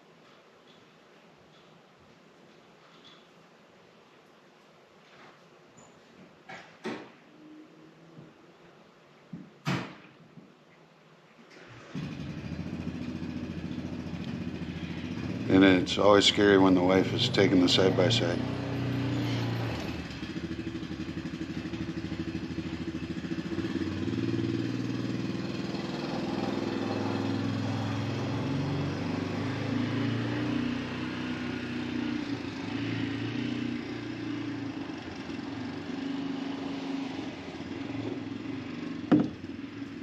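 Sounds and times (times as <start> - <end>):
utility vehicle engine running: 11.6 - 40.0.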